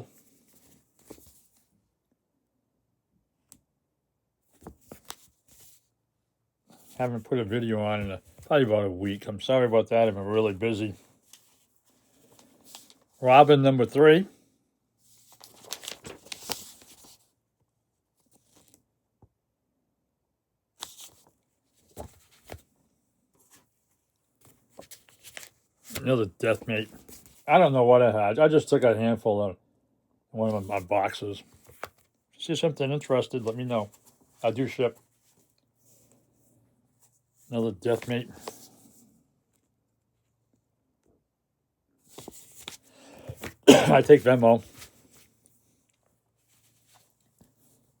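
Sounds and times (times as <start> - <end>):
comic books rustling: 0.1 - 1.8, 4.5 - 5.9, 6.7 - 14.2, 15.0 - 17.4, 18.1 - 18.9, 20.8 - 28.1, 30.4 - 39.1, 42.0 - 48.0.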